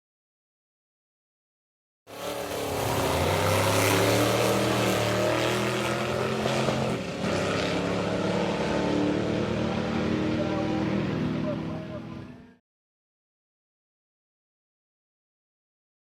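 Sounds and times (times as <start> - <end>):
race car engine running: 2.1 - 12.6.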